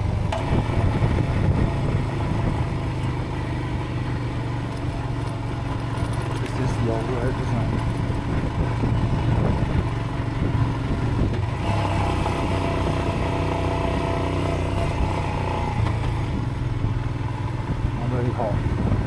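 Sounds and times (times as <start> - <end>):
higher engine tone: 0.0 - 19.0
motorcycle engine running: 0.0 - 19.0.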